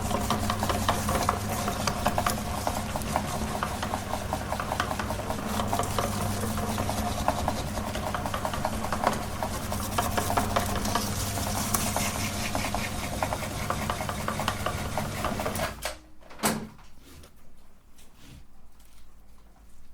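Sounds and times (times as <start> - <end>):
meat grinder motor grinding: 0.0 - 15.8.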